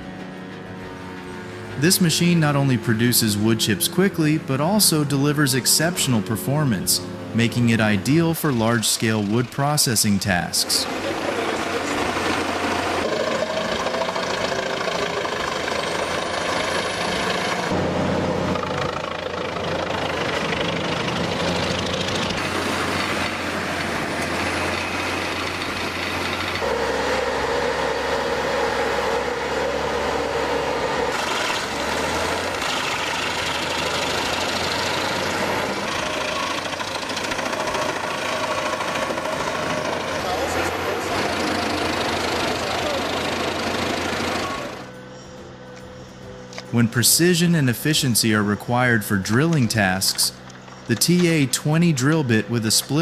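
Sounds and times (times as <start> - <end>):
diesel wood grinder running: 10.6 - 45.0.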